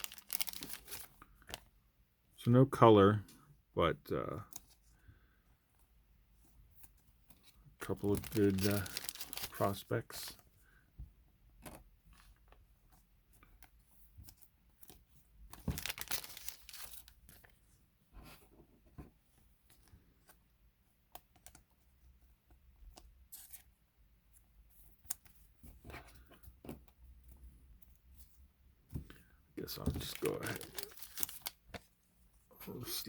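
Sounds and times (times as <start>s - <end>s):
card sleeves rustling: 0.0s - 1.8s, 6.4s - 10.5s, 11.5s - 20.5s, 22.9s - 32.4s.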